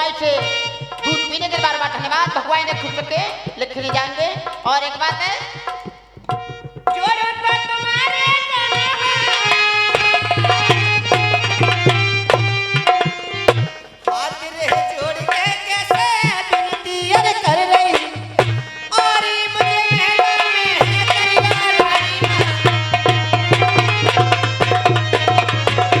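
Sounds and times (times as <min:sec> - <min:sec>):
hand drum beat: 0:00.0 - 0:26.0
sliding melodic instrument: 0:05.8 - 0:15.7.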